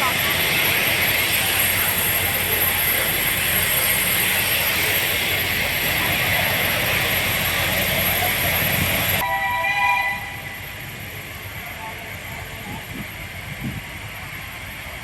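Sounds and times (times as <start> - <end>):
locomotive horn blast: 9.2 - 10.6.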